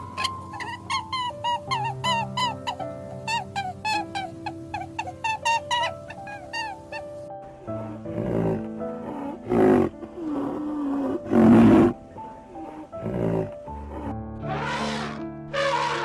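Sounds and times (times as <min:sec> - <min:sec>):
soft background music: 0:00.0 - 0:16.0
large animal roaring and growling: 0:07.8 - 0:12.0, 0:12.7 - 0:16.0.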